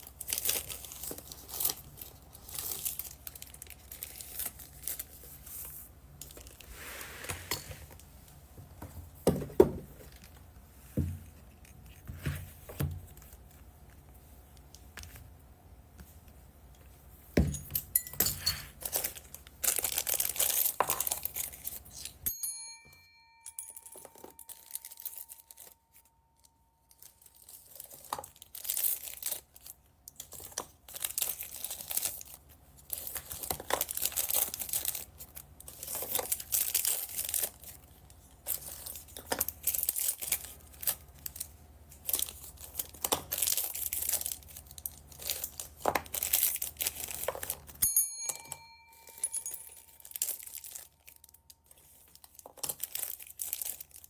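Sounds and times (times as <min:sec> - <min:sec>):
plastic bags crinkling and tearing: 0:00.0 - 0:06.7, 0:18.7 - 0:22.2, 0:24.2 - 0:47.8, 0:49.7 - 0:54.0
ringing chime: 0:22.3 - 0:26.0, 0:47.8 - 0:50.5.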